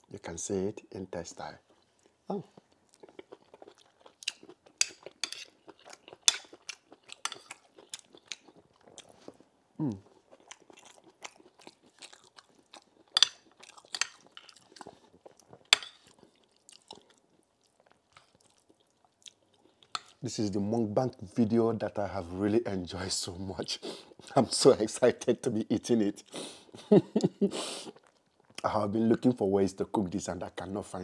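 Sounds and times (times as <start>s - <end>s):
close chewing: 1.6s - 20.2s.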